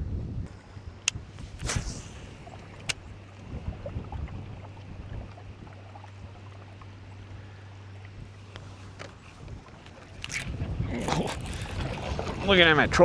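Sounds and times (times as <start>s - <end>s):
sharp click: 1.0s - 3.1s.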